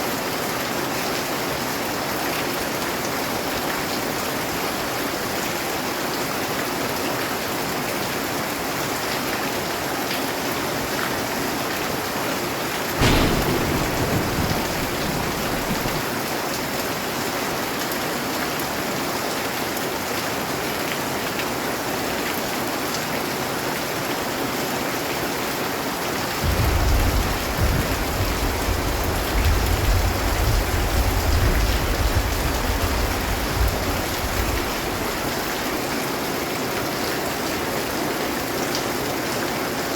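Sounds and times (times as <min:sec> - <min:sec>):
steady rain hissing: 0:08.8 - 0:22.8, 0:24.6 - 0:38.2
low roll of thunder: 0:13.0 - 0:16.3, 0:26.4 - 0:35.5
thunderclap: 0:13.0 - 0:16.4, 0:26.4 - 0:35.6.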